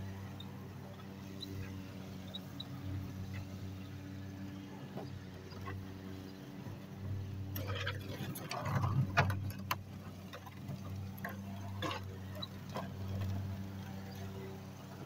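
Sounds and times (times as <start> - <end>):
push sweeper rolling on driveway: 0.0 - 15.0
brushes and wheels rattling: 7.2 - 15.0.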